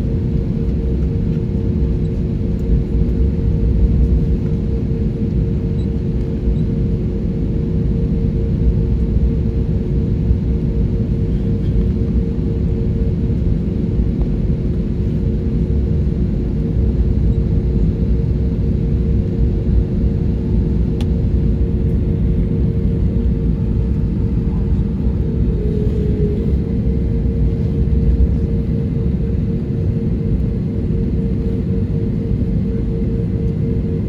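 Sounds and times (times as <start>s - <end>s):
aircraft engine rumble: 0.0s - 34.0s.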